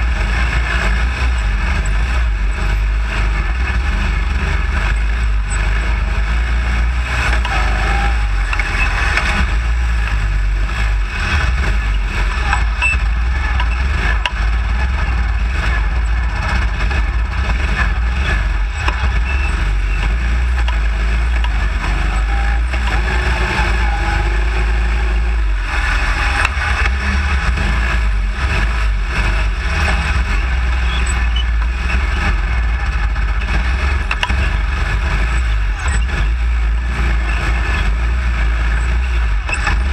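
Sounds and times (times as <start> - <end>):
small engine running loud: 0.0 - 39.9.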